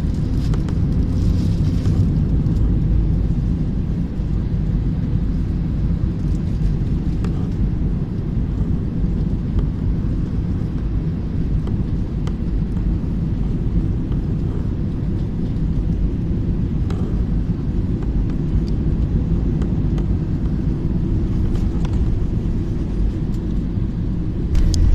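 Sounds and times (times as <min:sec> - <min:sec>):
airliner engine and airflow rumble: 0:00.0 - 0:24.9.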